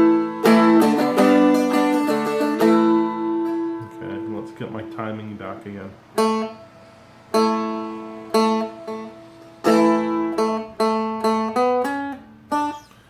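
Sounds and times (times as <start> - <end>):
strummed dulcimer chords: 0.0 - 12.9.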